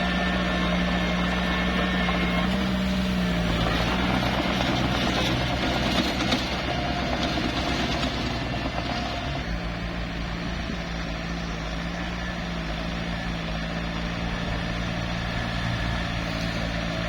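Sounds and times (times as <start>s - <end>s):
diesel engine running under load: 0.0s - 17.0s.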